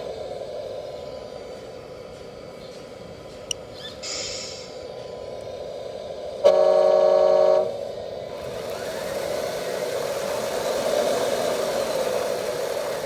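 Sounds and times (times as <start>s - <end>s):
short hiss: 3.8s - 4.8s.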